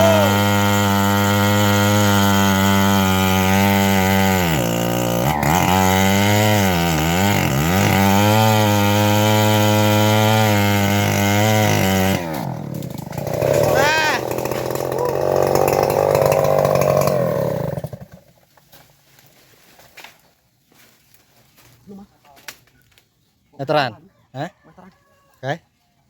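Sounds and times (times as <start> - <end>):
sawmill engine running: 0.0 - 18.1.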